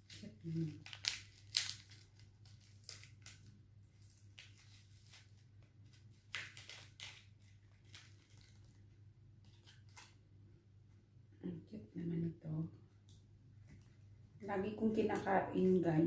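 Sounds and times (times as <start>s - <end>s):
plastic food packaging rustling: 0.0s - 10.2s.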